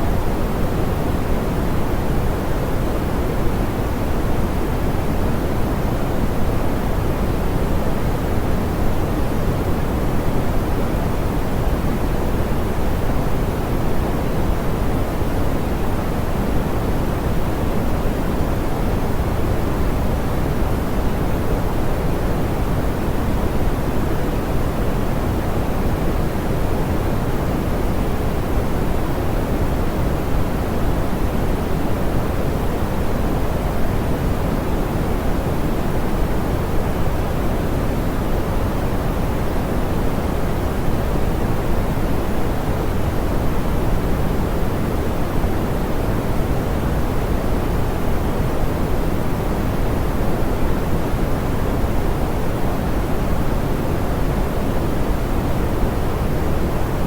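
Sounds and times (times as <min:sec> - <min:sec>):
soft pink noise hiss: 0:00.0 - 0:57.0.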